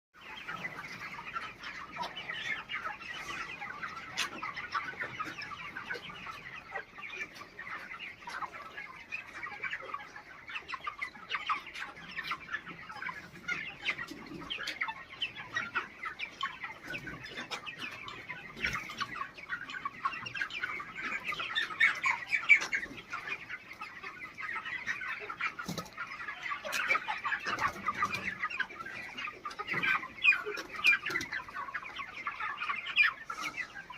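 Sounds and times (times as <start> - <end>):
chickens clucking: 0.2 - 33.9.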